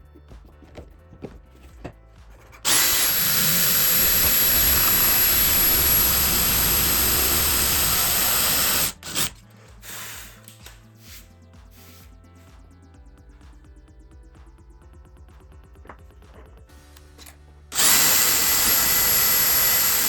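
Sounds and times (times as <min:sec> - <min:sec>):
quiet background music: 0:00.0 - 0:20.0
power tool whining: 0:02.7 - 0:09.4, 0:17.7 - 0:20.0.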